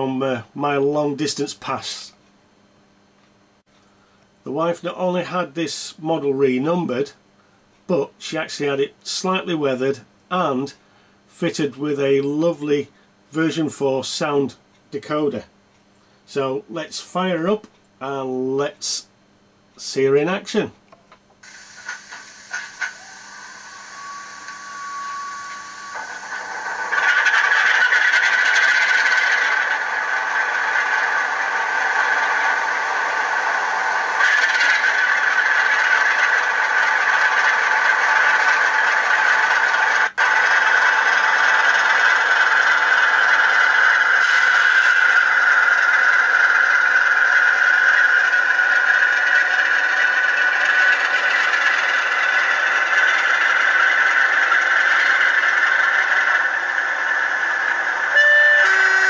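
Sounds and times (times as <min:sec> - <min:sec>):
short steady tone: 0:21.6 - 0:27.4, 0:58.1 - 0:59.0
model diesel engine sound from speaker: 0:57.6 - 0:59.0.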